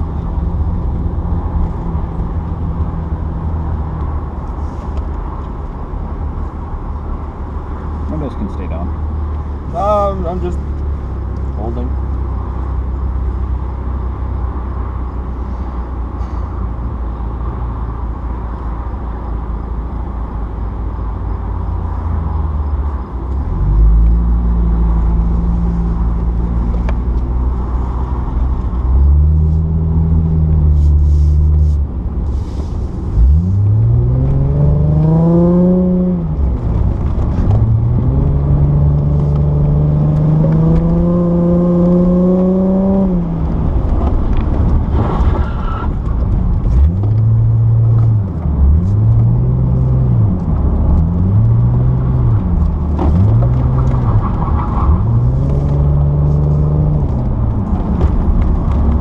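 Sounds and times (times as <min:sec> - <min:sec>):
car engine revving: 0:23.4 - 0:59.0.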